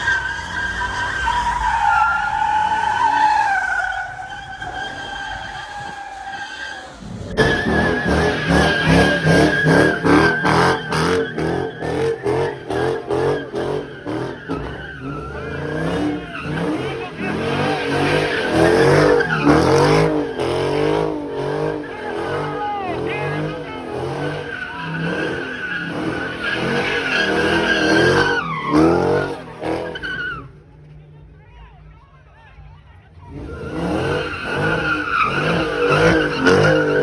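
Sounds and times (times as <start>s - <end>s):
car tires squealing: 0.0s - 31.4s, 32.2s - 37.0s
engine revving in pulses: 6.8s - 30.0s, 33.3s - 37.0s.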